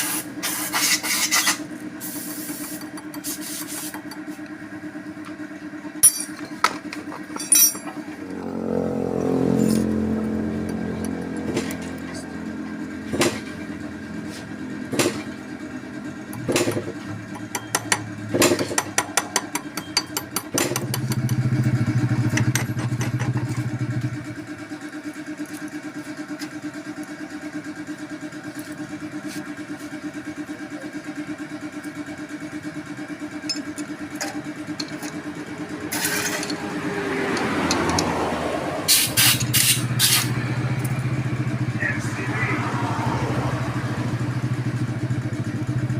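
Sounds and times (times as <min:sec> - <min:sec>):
small motorcycle engine idling: 0:00.0 - 0:45.9.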